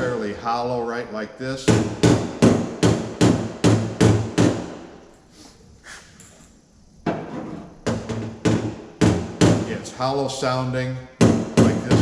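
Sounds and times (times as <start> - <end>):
chisel striking metal door: 11.2 - 12.0.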